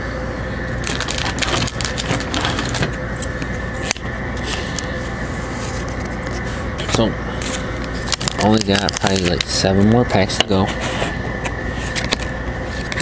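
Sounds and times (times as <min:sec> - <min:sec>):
steady background hum: 0:00.0 - 0:13.0
trading cards rustling: 0:00.8 - 0:09.9.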